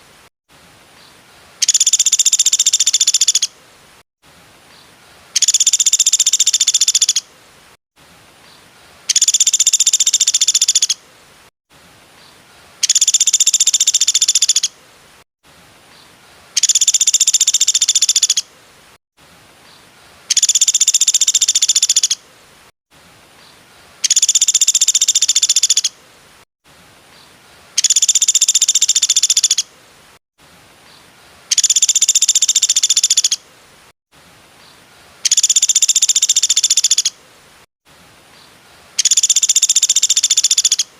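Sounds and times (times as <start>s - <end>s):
small bird high-pitched trill: 1.6s - 3.5s, 5.4s - 7.2s, 9.1s - 11.0s, 12.8s - 14.7s, 16.6s - 18.4s, 20.3s - 22.2s, 31.5s - 33.4s, 35.2s - 37.1s, 39.0s - 40.9s.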